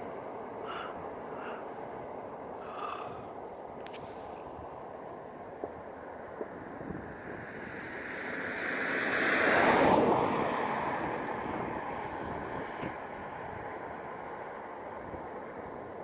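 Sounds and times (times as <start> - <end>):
aircraft passing overhead: 0.6 - 4.6.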